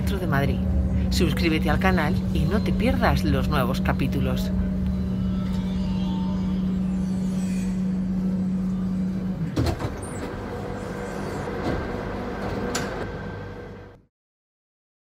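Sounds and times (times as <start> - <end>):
metro train hum and rumble: 0.0 - 14.1.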